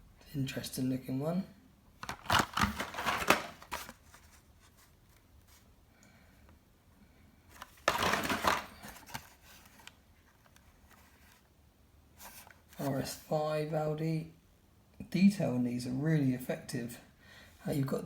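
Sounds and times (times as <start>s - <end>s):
plastic and cardboard rustling: 2.0s - 5.7s, 7.5s - 11.5s, 12.2s - 13.1s.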